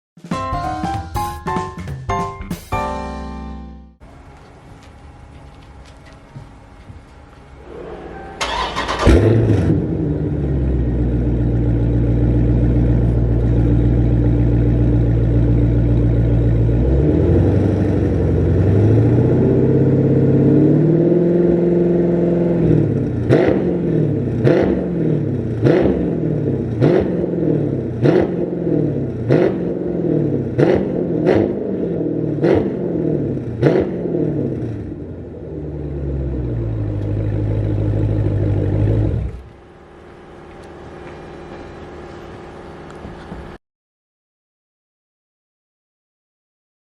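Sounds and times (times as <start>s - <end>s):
engine throttle blips: 4.0s - 43.6s
car engine idling and revving: 7.3s - 43.6s.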